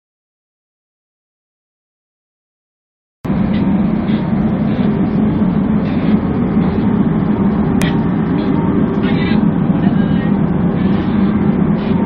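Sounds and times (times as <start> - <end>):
road noise: 3.3 - 12.0
vehicle engine rumble: 3.3 - 12.0.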